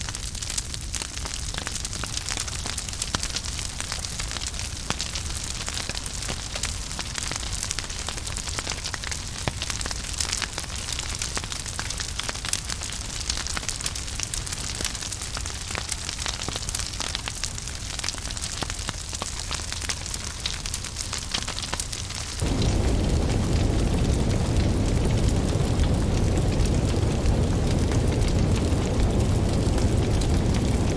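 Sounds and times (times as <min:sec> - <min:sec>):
deep rumble of flames: 0:00.0 - 0:30.9
soft hiss of fire: 0:00.0 - 0:30.9
wood fire crackling and popping: 0:00.0 - 0:30.9.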